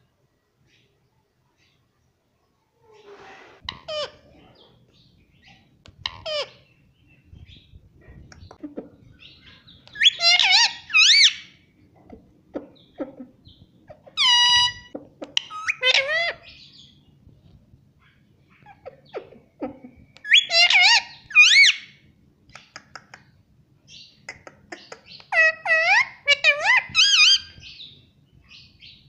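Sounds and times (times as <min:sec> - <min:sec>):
parrot whistling calls: 0:09.9 - 0:11.5, 0:20.2 - 0:21.9, 0:25.3 - 0:27.6.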